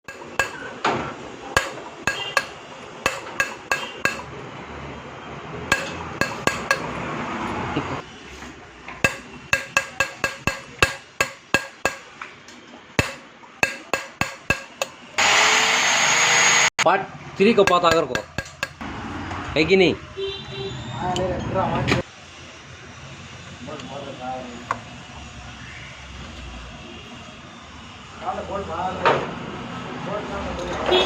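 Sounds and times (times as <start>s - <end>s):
metal-on-metal taps ringing: 0.1s - 0.7s, 1.6s - 4.3s, 5.7s - 7.0s, 9.0s - 12.2s, 13.0s - 15.0s, 17.5s - 18.8s
loud steady noise: 0.1s - 8.1s, 9.0s - 12.2s, 13.0s - 18.9s.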